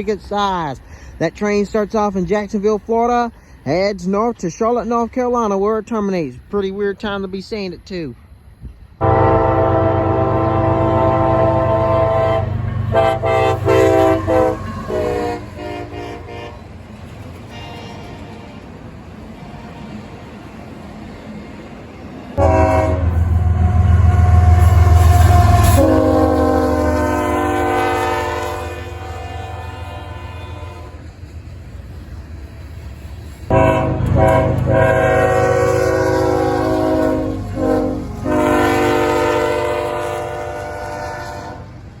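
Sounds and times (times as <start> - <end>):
locomotive air horn: 9.0 - 16.7, 22.4 - 31.1, 33.5 - 41.8.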